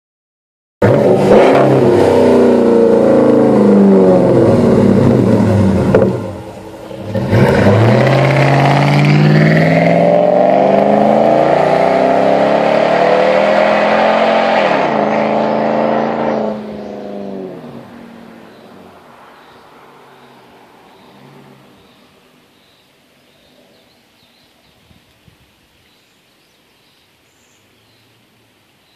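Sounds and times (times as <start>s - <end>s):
engine exhaust revving loudly: 0.8s - 17.8s.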